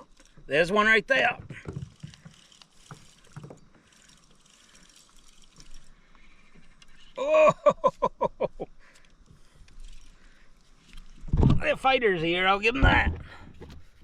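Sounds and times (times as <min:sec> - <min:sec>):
man exclaiming oh: 0:07.2 - 0:07.6
man laughing: 0:07.2 - 0:08.8.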